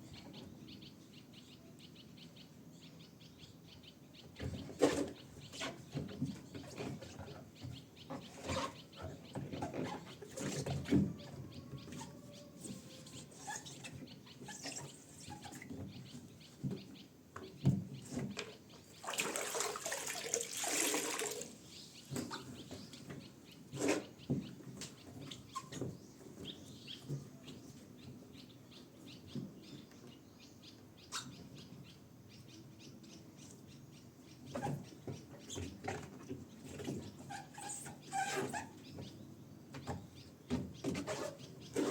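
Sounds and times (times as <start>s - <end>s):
rush of water: 19.0s - 21.6s.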